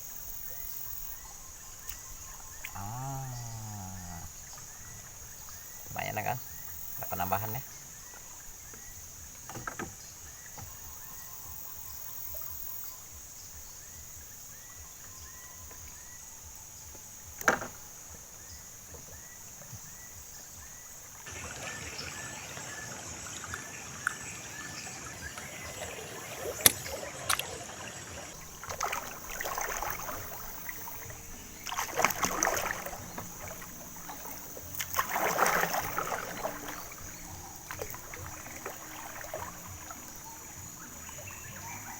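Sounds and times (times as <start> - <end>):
small chirping call: 0.0 - 13.2
high insect drone: 0.0 - 41.9
water splashing against boat: 0.0 - 41.9.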